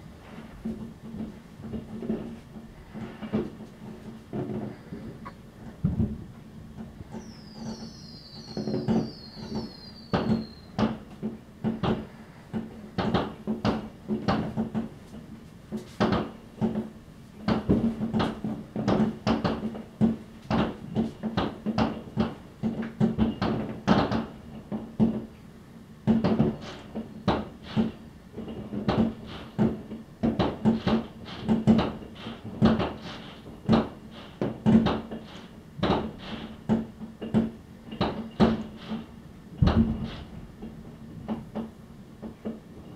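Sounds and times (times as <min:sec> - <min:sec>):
falling firework whistles: 0:07.2 - 0:10.8
fireworks banging: 0:26.2 - 0:40.7.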